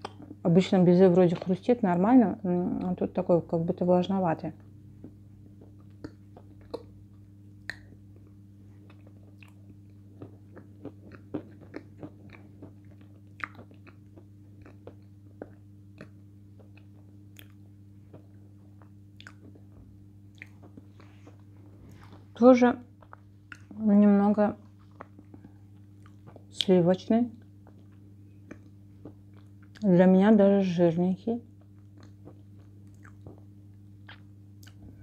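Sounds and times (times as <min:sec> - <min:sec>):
steady low hum: 0:00.0 - 0:35.0
chewing chalk with soft crunches: 0:07.7 - 0:22.3.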